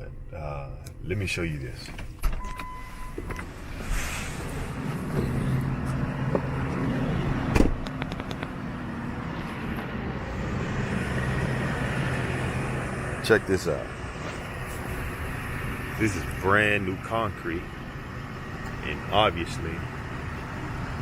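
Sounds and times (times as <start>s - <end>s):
short beep: 2.4s - 3.5s
engine idling: 2.7s - 21.0s.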